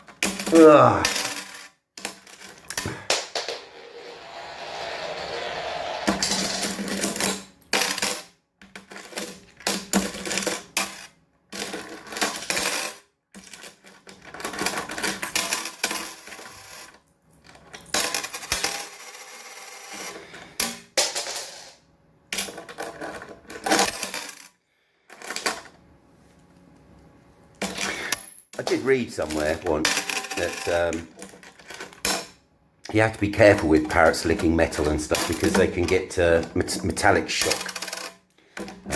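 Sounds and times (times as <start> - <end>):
coins clattering on a table: 0.1 - 3.0, 7.8 - 8.2, 8.8 - 21.8, 22.4 - 24.5, 25.1 - 25.8, 27.6 - 32.3, 34.8 - 36.5, 37.2 - 38.8.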